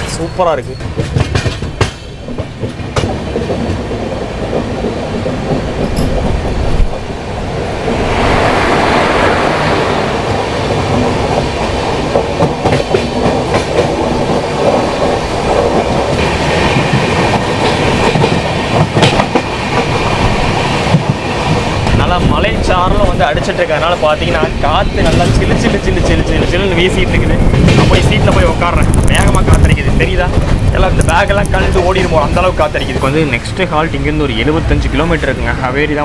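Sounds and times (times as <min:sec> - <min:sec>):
train wheels clattering: 0:00.0 - 0:35.6
wind blowing strongly: 0:01.1 - 0:33.5
loud rushing noise: 0:06.5 - 0:12.1.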